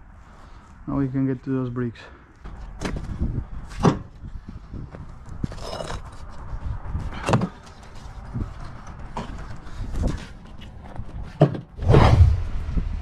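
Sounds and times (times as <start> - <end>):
rubble scraping and shifting: 4.9 - 12.9
low steady rumble: 11.8 - 13.0.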